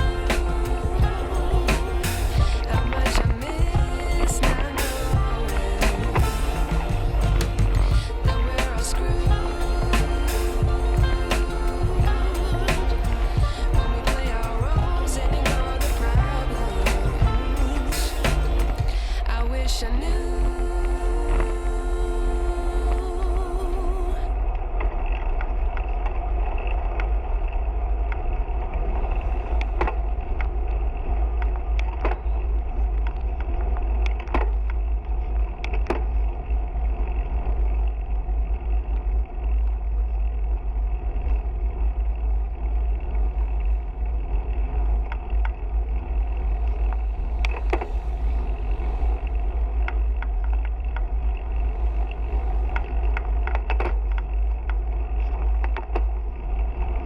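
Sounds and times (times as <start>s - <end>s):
road noise: 0.0s - 19.3s.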